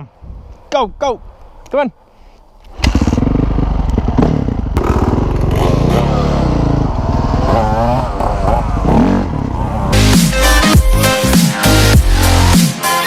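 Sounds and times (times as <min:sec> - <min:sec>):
dirt bike engine revving: 0:02.8 - 0:10.2.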